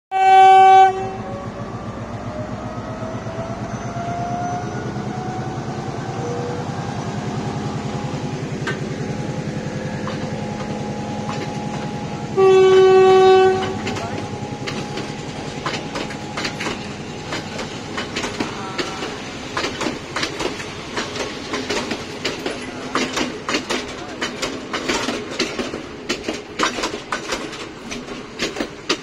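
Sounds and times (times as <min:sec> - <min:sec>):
train horn blast: 0:00.1 - 0:01.6, 0:11.8 - 0:15.0
train running: 0:00.1 - 0:29.0
wheels clicking over rail joints: 0:08.6 - 0:09.1, 0:09.9 - 0:12.0, 0:13.3 - 0:29.0.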